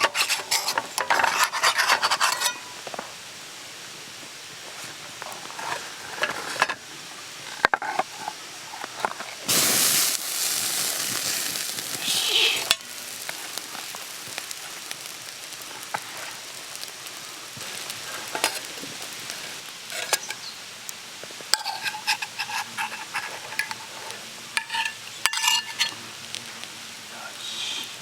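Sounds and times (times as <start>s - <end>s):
utensils clicking and scraping: 0.0s - 2.6s, 21.6s - 26.0s
food sizzling in a pan: 4.3s - 28.0s.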